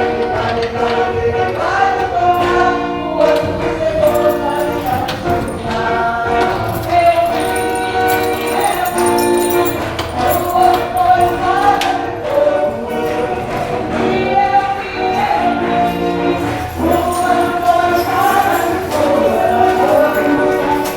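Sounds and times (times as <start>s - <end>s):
congregation singing hymns: 0.0s - 20.9s
instrumental accompaniment: 0.0s - 20.9s
tambourine jingling: 0.0s - 20.9s.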